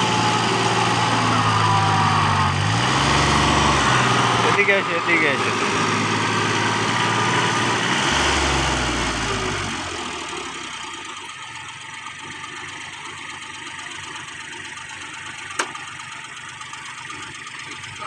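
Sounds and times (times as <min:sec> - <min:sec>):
heavy machine engine running: 0:00.0 - 0:11.5.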